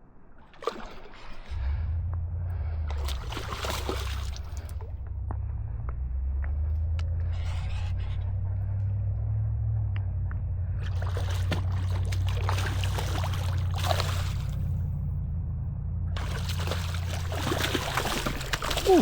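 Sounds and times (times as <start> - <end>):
low rumble: 0.0 - 19.0
water splashing and trickling: 0.4 - 1.7, 2.8 - 5.0, 10.8 - 14.9, 16.2 - 19.0.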